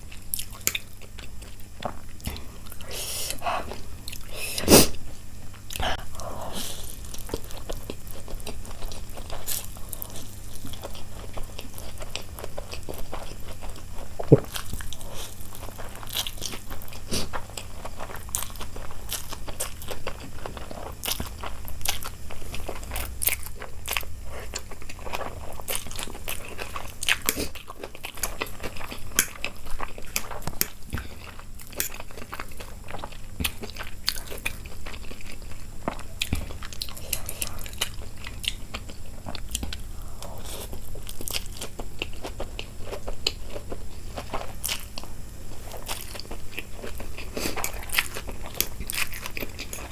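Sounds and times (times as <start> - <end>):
person chewing and biting food: 0.0 - 49.9.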